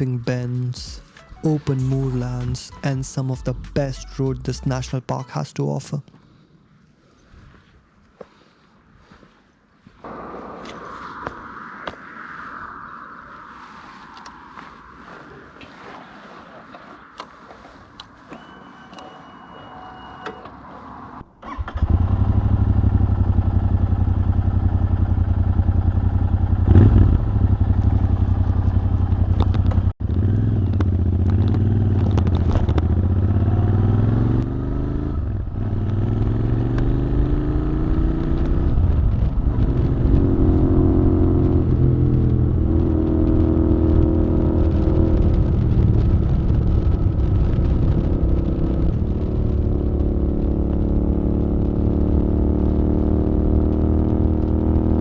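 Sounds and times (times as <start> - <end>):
motorcycle engine accelerating: 21.4 - 55.0.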